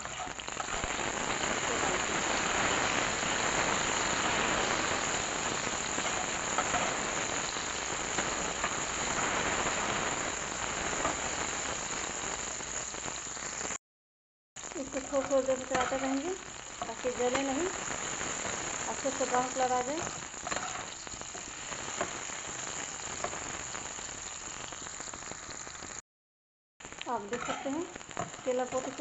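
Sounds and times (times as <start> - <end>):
spatula turning food: 0.0 - 1.1, 5.9 - 7.1, 14.8 - 17.8, 18.9 - 22.2, 27.2 - 29.0
banana pieces sizzling in oil: 0.0 - 13.8, 14.6 - 26.0, 26.8 - 29.0.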